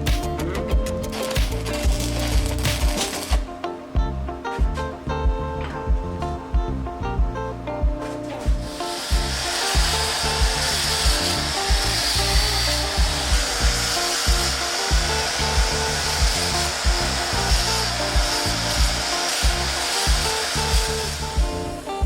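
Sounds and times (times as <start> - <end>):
power tool rasping hiss: 0.0 - 3.5, 8.0 - 22.0
background music with steady beat: 0.0 - 22.0.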